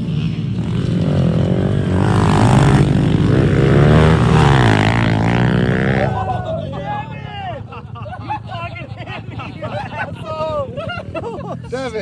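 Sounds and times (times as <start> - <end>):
motorbike engine revving: 0.0 - 6.7.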